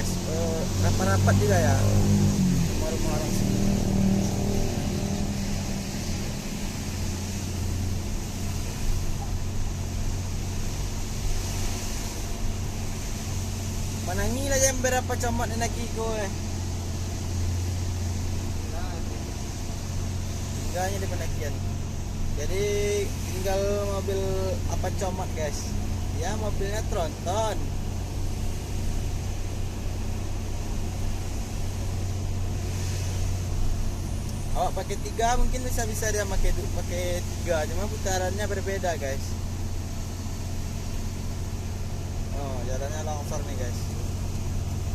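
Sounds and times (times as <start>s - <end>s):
road and wind noise: 0.0s - 44.9s
vehicle engine running: 0.0s - 44.9s.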